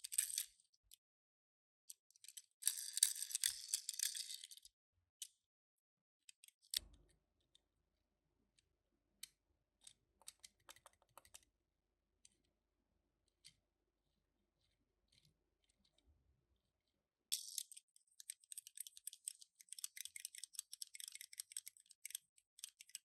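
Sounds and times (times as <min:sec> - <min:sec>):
toy cars clicking and tapping: 0:00.0 - 0:00.6, 0:01.9 - 0:04.7, 0:09.8 - 0:11.5, 0:17.3 - 0:23.0.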